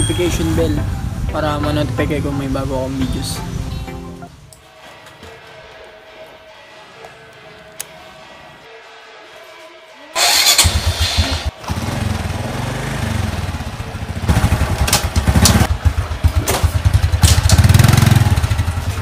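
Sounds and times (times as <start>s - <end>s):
electric starter: 10.2s - 11.8s
motorcycle engine revving: 10.2s - 19.0s.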